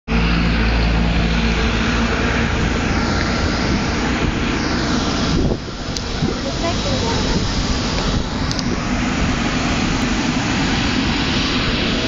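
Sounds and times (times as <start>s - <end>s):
airliner engines running: 0.1s - 12.0s.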